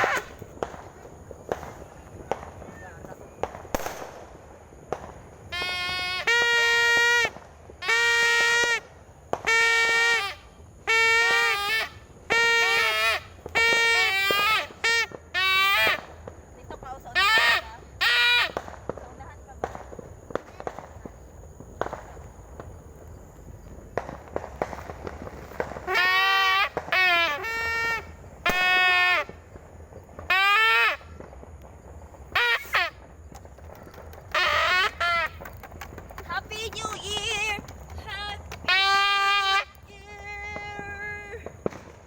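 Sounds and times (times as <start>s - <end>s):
toy party horn buzzing blasts: 0.0s - 0.4s, 5.5s - 8.8s, 9.5s - 16.0s, 25.9s - 29.3s, 30.3s - 31.0s, 32.4s - 33.0s, 34.3s - 35.4s, 38.1s - 39.9s
firecracker pops: 0.0s - 42.0s.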